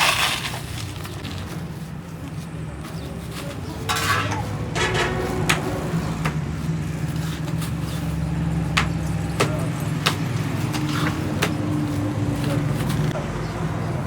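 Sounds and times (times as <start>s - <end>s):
sharp knocks on metal: 4.8s - 6.5s.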